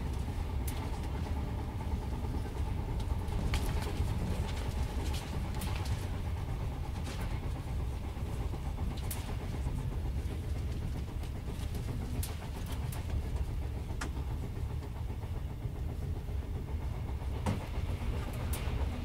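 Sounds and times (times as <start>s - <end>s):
train running gear rumble: 0.0s - 19.0s.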